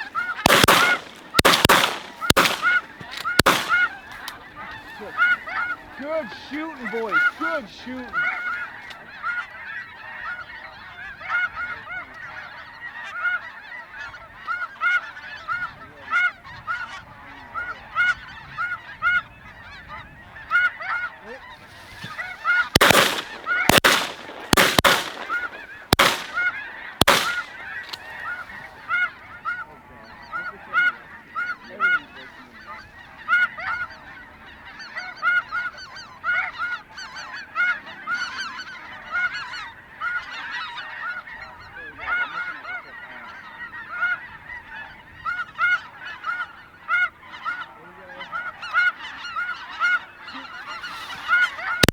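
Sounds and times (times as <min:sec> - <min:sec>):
snow goose calls: 0:00.0 - 0:51.9
shotgun shots: 0:00.4 - 0:04.1, 0:22.7 - 0:28.0.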